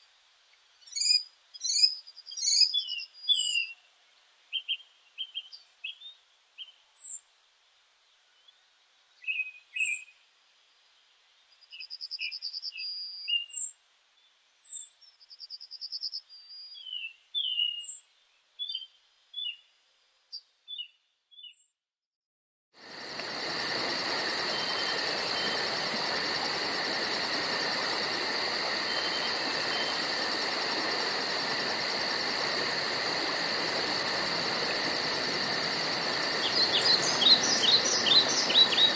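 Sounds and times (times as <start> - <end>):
continuous hiss: 0.0 - 20.6, 22.8 - 38.9
insect chorus buzzing: 22.8 - 38.9
birds chirping and whistling: 36.4 - 38.9.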